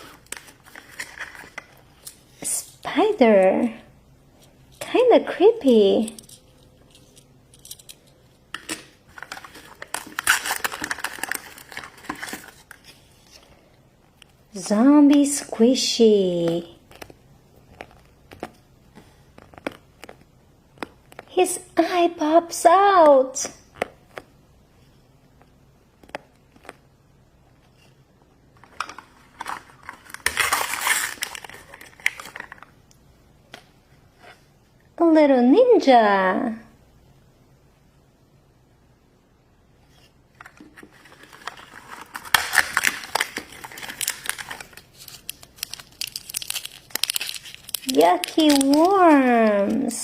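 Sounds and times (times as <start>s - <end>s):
plastic packaging crinkling: 0.0s - 2.8s, 6.1s - 13.6s, 28.6s - 32.8s, 40.4s - 50.0s.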